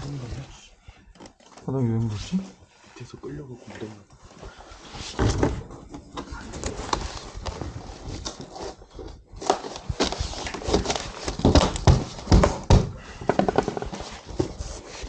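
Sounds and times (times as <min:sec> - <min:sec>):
heavy thumps: 0:10.0 - 0:14.7
knocking on wall panels: 0:11.3 - 0:14.0.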